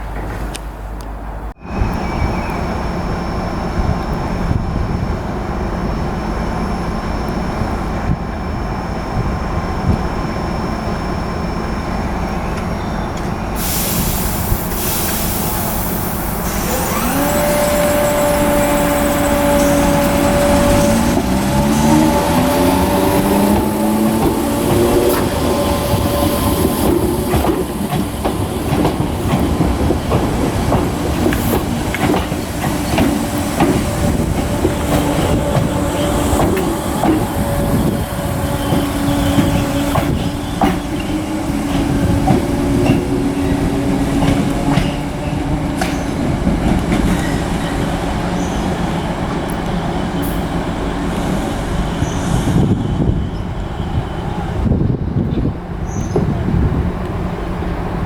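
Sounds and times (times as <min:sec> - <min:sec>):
train rumble and motor hum: 0:00.0 - 0:58.0
train wheels clicking over joints: 0:12.0 - 0:53.1.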